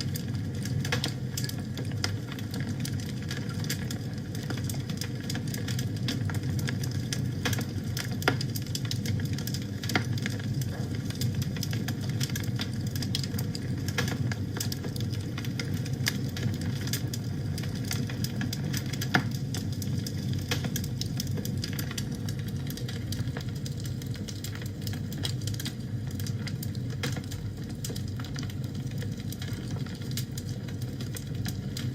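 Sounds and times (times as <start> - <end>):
fire crackling in a fireplace: 0.0 - 31.9.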